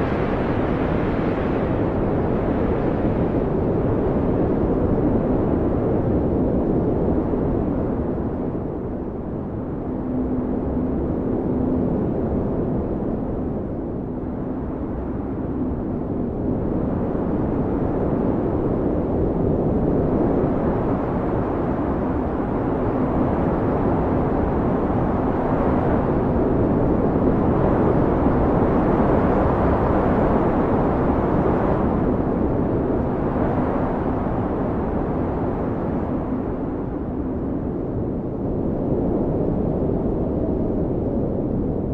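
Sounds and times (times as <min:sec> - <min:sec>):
blizzard wind blowing hard: 0:00.0 - 0:41.9
faint howling tone: 0:08.1 - 0:18.3.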